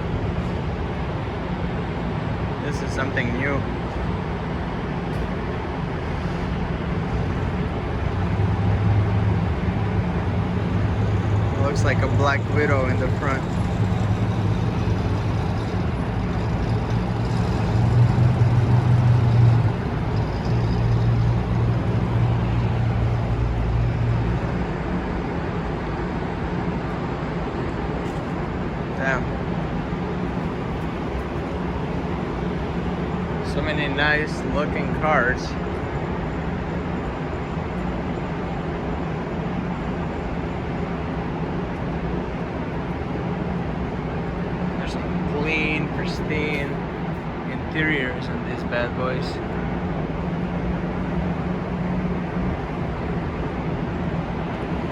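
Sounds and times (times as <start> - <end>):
constant low hum: 0.0 - 54.9
car engine idling: 6.9 - 24.3.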